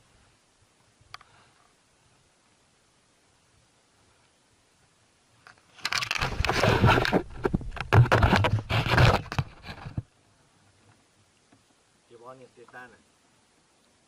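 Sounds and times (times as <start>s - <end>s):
scraping and knocking on kayak: 5.9s - 10.1s.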